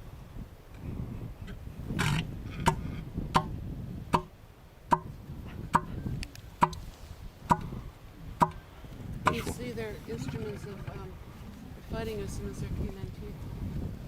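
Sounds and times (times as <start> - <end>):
elephant seal calling: 7.6 - 12.4.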